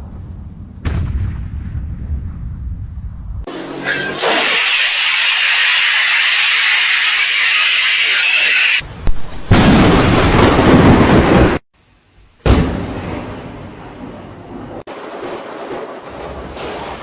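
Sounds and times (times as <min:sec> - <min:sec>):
thunder rumbling: 0:00.0 - 0:03.5, 0:08.8 - 0:11.6, 0:12.4 - 0:17.0.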